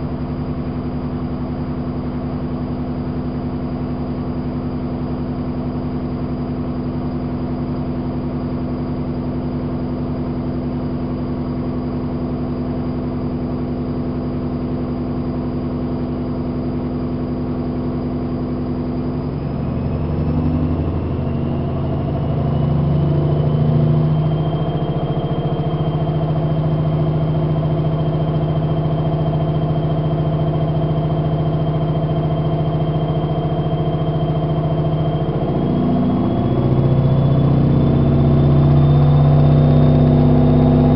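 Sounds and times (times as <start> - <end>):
washing machine spinning: 8.3 - 40.0.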